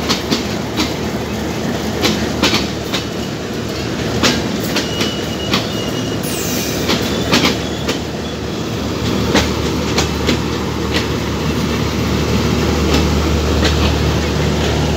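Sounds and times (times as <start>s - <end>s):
train wheels clacking over rail joints: 0.0s - 8.2s, 8.8s - 14.9s
diesel locomotive engine drone: 0.0s - 14.9s
faint wheel squeal: 4.8s - 8.8s.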